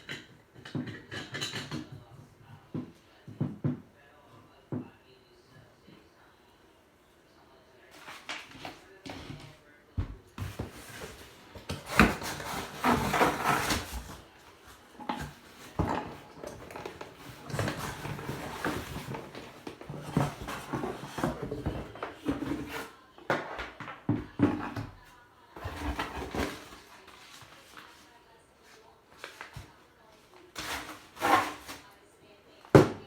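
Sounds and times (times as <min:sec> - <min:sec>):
parts clattering and knocking: 0:15.0 - 0:22.6.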